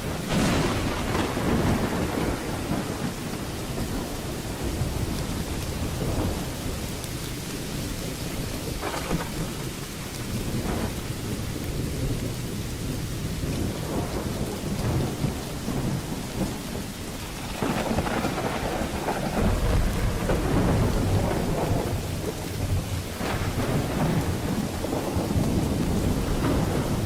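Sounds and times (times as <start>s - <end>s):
rolling thunder: 0.0s - 27.0s
steady rain: 0.0s - 27.0s.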